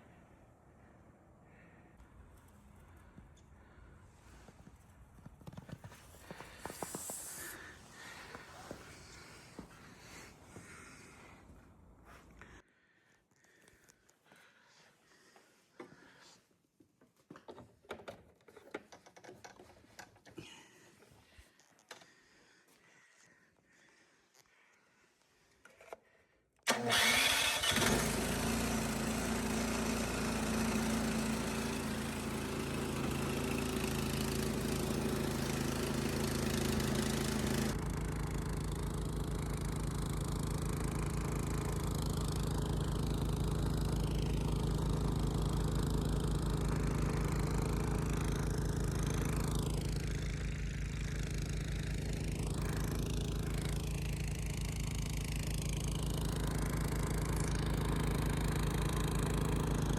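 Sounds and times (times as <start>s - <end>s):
engine starting and idling: 26.6s - 59.9s.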